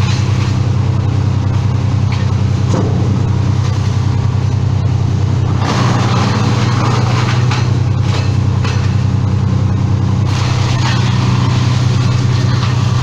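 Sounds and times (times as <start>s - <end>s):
large engine running: 0.0s - 13.0s.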